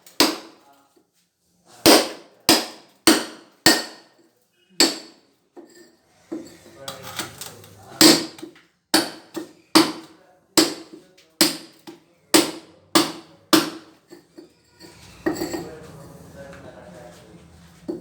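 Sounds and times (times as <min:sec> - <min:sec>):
hammer striking chisel: 0:00.0 - 0:00.6, 0:01.8 - 0:04.1, 0:04.8 - 0:05.2, 0:08.0 - 0:14.0
rough scraping noise: 0:14.5 - 0:18.0.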